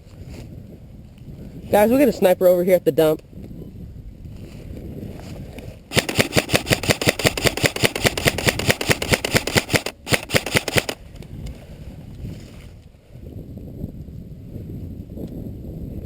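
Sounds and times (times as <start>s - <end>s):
airsoft rifle firing on full auto: 5.9s - 11.0s.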